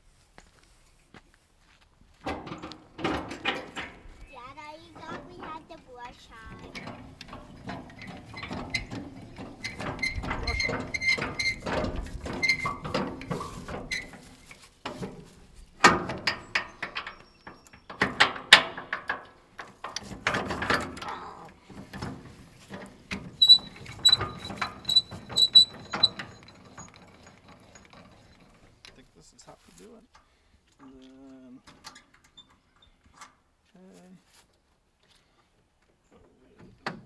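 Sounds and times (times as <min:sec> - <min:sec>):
metal chains clanking and rattling: 0:02.2 - 0:29.3
ratchet clicks: 0:23.4 - 0:29.0.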